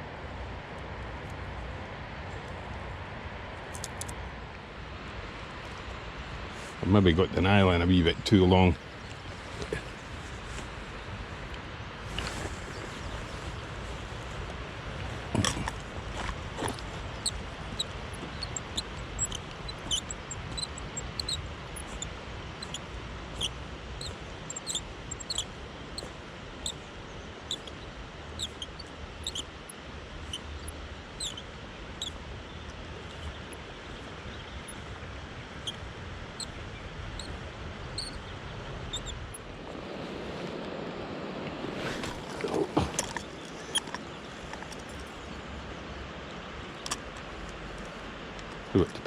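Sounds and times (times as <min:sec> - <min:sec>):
river water rushing: 0:08.6 - 0:48.8
fishing reel squeaking: 0:16.6 - 0:26.8, 0:27.5 - 0:27.8, 0:28.4 - 0:29.5, 0:30.3 - 0:31.4, 0:38.0 - 0:38.2, 0:38.9 - 0:39.5.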